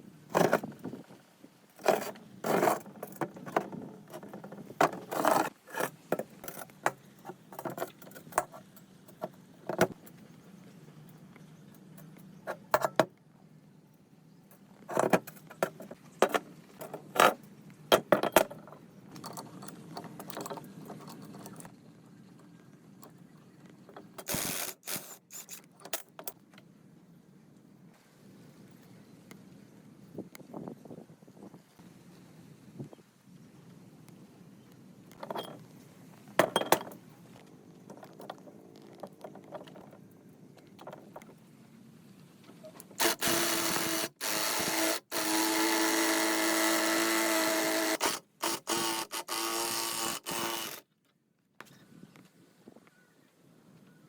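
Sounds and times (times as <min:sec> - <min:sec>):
metal parts clinking: 0:24.2 - 0:26.3
metal tools clinking: 0:36.4 - 0:37.0.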